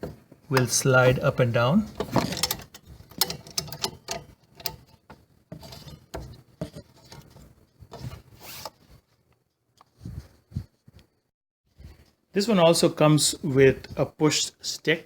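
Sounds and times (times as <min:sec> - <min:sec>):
metal scraping: 0:00.0 - 0:09.0
clicks and rattles of saw parts: 0:01.9 - 0:08.2.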